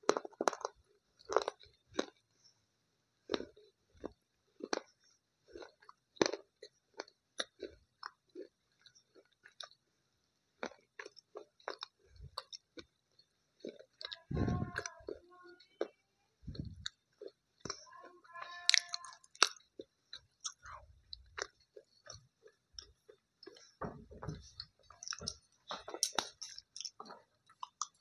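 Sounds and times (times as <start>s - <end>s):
crunchy chewing: 0.0s - 2.3s, 3.2s - 9.8s, 10.6s - 23.8s, 24.4s - 28.0s.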